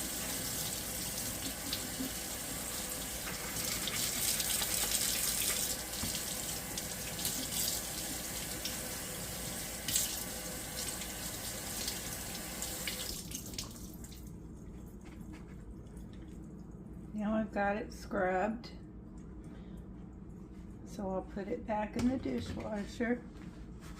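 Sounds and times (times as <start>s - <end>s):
tap running into sink: 3.2s - 6.3s.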